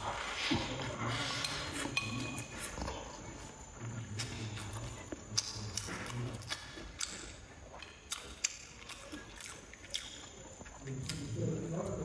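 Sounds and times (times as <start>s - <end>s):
wet chewing mouth sounds: 0.0s - 12.0s
sharp mouth clicks: 5.2s - 11.3s.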